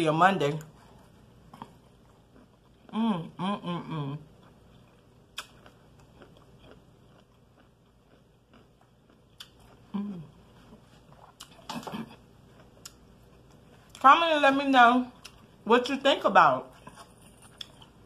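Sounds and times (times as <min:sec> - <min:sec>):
person chewing food: 0:00.6 - 0:03.4, 0:04.3 - 0:14.0, 0:16.7 - 0:18.0
person humming: 0:02.9 - 0:04.2
sharp mouth clicks: 0:05.4 - 0:05.7.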